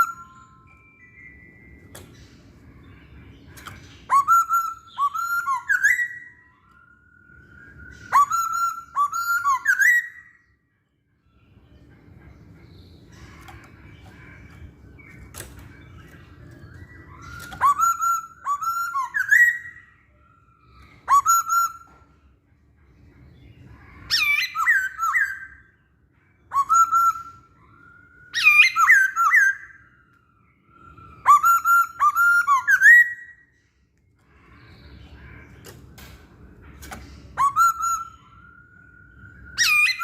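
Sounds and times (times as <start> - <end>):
bird singing whistled phrases: 0.0 - 1.6, 4.0 - 10.5, 15.0 - 22.1, 24.0 - 25.8, 26.4 - 33.5, 37.2 - 40.0.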